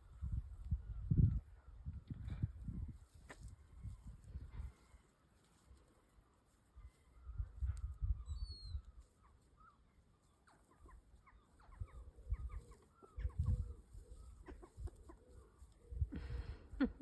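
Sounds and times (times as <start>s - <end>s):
hens clucking: 10.4s - 17.0s.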